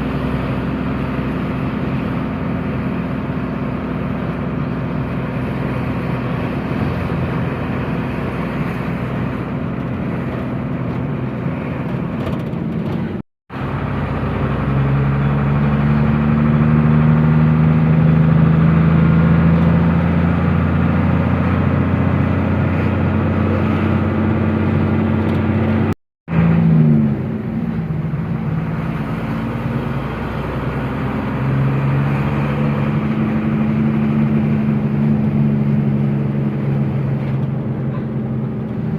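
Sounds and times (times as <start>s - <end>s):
truck engine driving: 0.0s - 38.9s.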